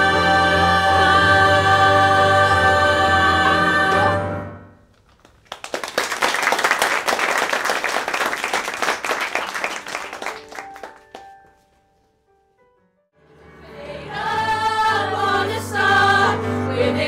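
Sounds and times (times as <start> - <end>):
audience applauding: 5.0 - 11.5.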